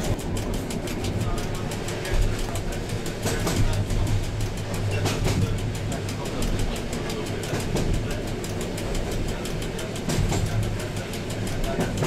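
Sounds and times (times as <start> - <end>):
train rumble and hum: 0.0 - 12.0
wheels clicking over rails: 0.0 - 12.0.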